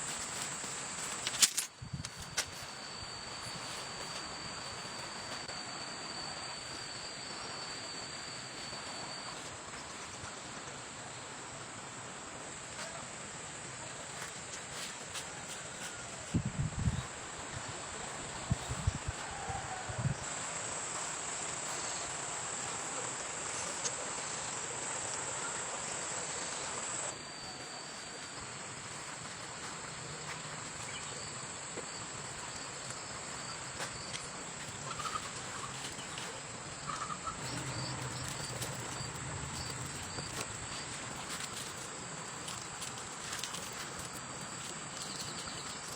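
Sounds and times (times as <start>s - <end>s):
insects shrilling: 30.3s - 45.9s.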